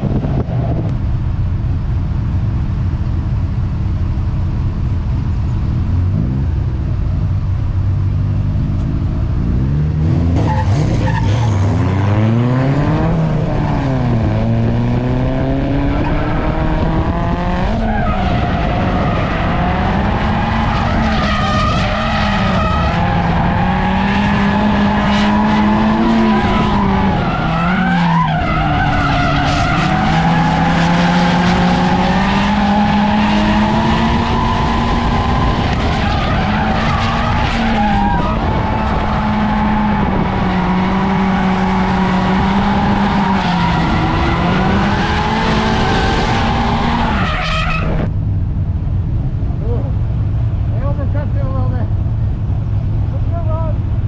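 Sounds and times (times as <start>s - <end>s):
car engine revving: 3.4s - 54.0s
tyres skidding on asphalt: 8.6s - 48.1s.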